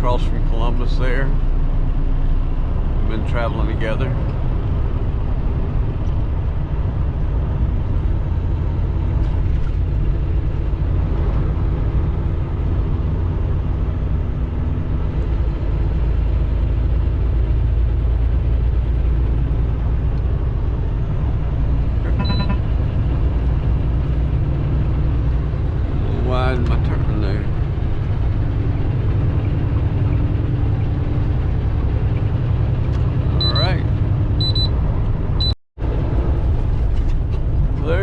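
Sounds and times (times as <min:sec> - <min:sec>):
road noise: 0:00.0 - 0:38.0
truck engine rumble: 0:00.0 - 0:38.0
short beep-like tone: 0:22.0 - 0:22.7, 0:34.4 - 0:34.7.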